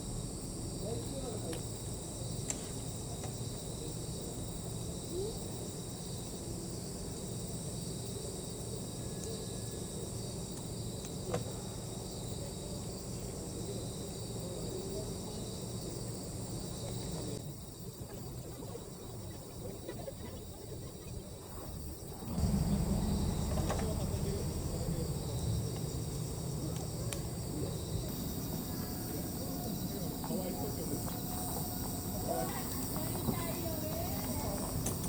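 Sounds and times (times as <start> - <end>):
crickets trilling: 0.0 - 35.0
low rushing noise: 22.1 - 32.3.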